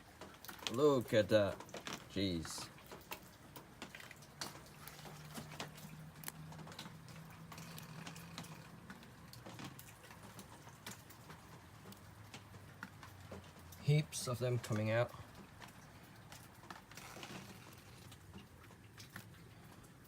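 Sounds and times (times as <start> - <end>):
raindrops tapping: 0.0 - 20.0.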